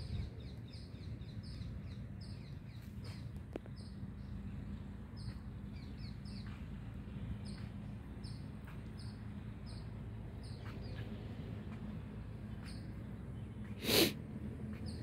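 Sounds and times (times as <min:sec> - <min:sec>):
bird chirping: 0:00.0 - 0:04.4.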